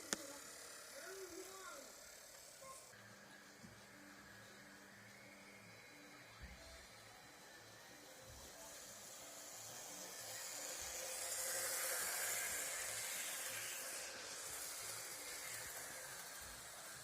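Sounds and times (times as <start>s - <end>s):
diesel locomotive passing: 8.6s - 17.0s.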